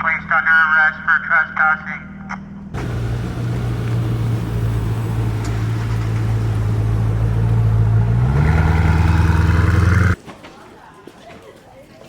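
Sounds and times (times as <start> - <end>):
car engine idling: 2.8 - 10.2.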